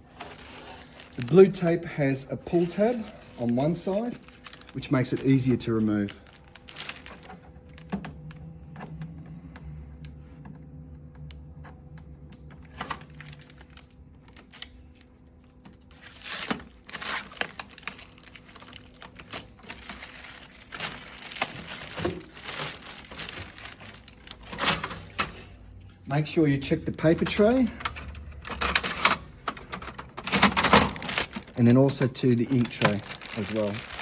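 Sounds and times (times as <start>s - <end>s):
tape crinkling: 0.0s - 8.4s, 12.4s - 25.3s, 26.6s - 34.0s
tape peeling off plastic: 12.6s - 24.6s
tape tearing scrapes: 15.4s - 24.1s.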